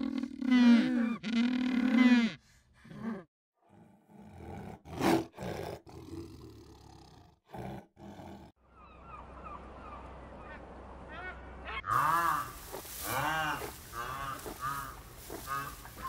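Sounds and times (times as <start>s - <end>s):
tiger roaring: 3.6s - 8.5s
flock of birds calling: 8.7s - 16.0s.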